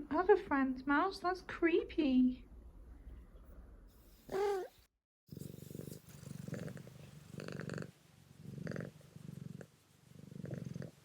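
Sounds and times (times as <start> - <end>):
cat purring: 4.1 - 11.0.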